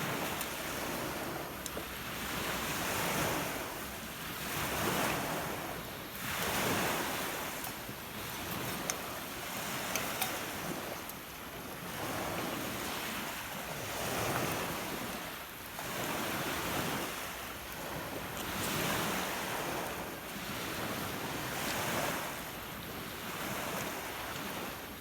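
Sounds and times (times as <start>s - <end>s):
lake waves breaking on beach: 0.0s - 25.0s.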